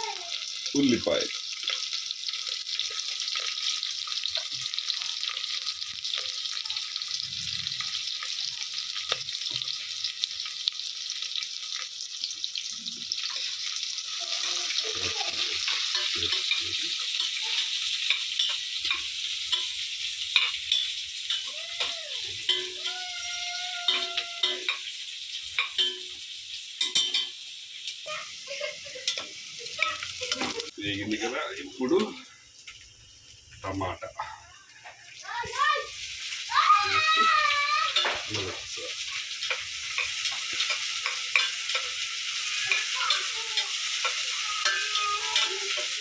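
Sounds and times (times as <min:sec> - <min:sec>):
onion sizzling in hot oil: 0:00.0 - 0:46.0
spoon knocking against pan: 0:26.8 - 0:27.4.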